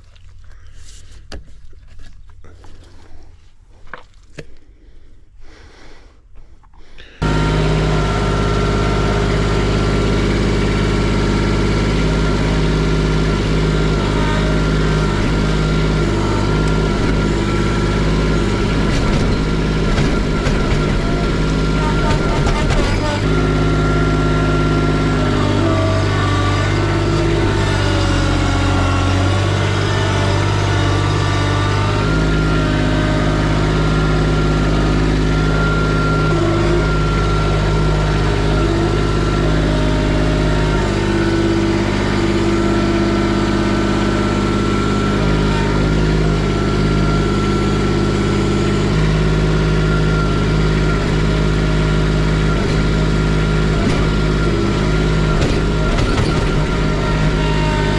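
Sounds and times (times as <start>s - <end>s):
tractor engine running: 7.2s - 57.9s.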